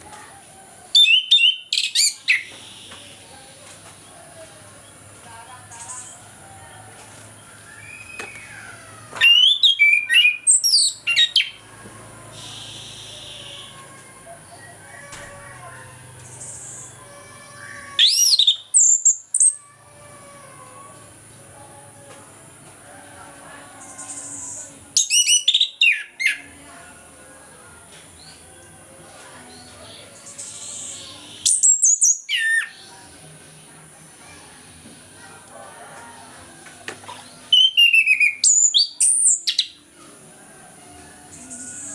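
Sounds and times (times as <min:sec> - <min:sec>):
thrush singing whistled notes: 0:00.9 - 0:03.4, 0:07.5 - 0:15.2, 0:18.0 - 0:19.6, 0:24.0 - 0:26.6, 0:30.2 - 0:33.0, 0:37.4 - 0:39.8, 0:41.3 - 0:41.9.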